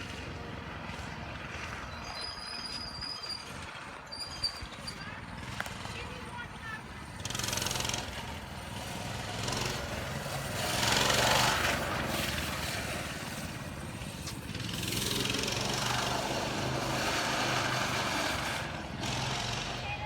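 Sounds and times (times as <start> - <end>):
dirt bike engine running: 5.2 - 20.0.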